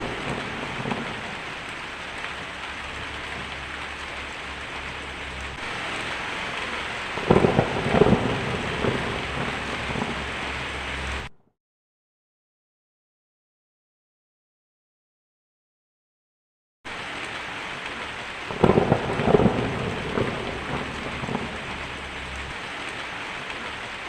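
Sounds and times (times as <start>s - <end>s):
heavy rain on a tin roof: 0.0s - 11.3s, 16.9s - 24.0s
thunder clap crackling: 0.0s - 11.3s, 16.9s - 24.0s.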